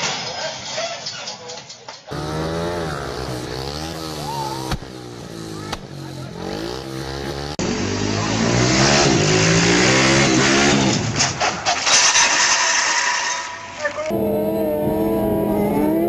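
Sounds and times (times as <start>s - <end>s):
motorcycle engines revving: 2.1s - 11.4s, 14.0s - 16.0s.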